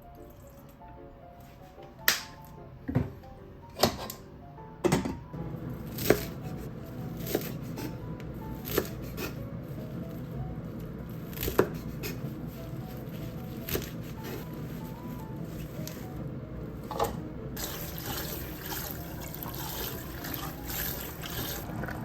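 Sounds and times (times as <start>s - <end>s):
background music: 0.0s - 22.0s
sharp knocks from kitchen work: 4.8s - 5.3s.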